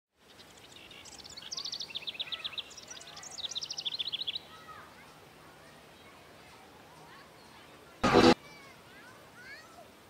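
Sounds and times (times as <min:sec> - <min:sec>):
faint bird calls: 0:00.4 - 0:05.1.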